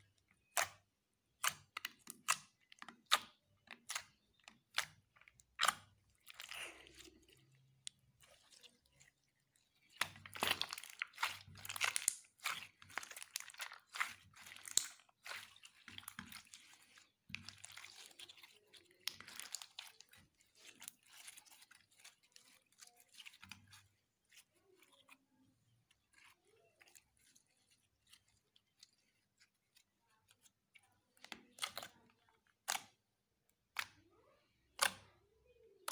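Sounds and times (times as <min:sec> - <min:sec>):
slime crackling and popping: 0:09.8 - 0:21.6.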